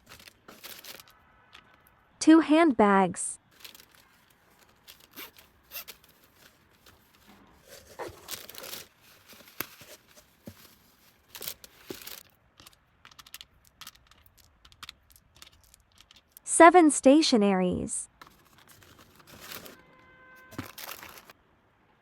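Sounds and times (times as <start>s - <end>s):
packaging rustling and scraping: 0.0s - 1.8s, 3.4s - 16.4s, 18.1s - 21.4s
rasping zipper-like sound: 4.9s - 8.9s.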